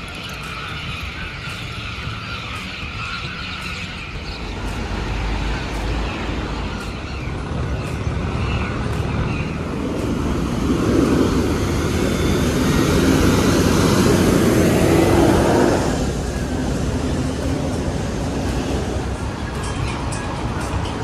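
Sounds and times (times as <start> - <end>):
street traffic: 0.0 - 21.0
motor vehicle passing close: 4.2 - 21.0.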